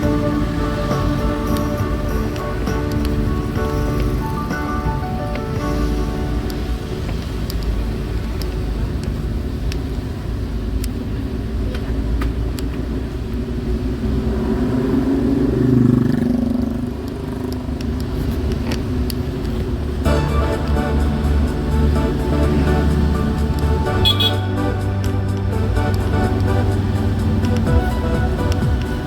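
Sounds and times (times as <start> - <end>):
music: 0.0 - 8.0, 20.0 - 29.0
vehicle passing close: 0.0 - 9.4, 13.2 - 29.0
passing cars and motorbikes: 0.0 - 29.0.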